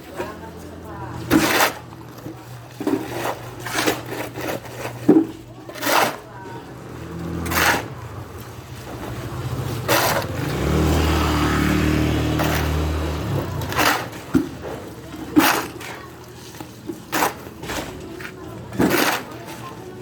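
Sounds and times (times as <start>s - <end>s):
engine running: 6.5s - 17.7s.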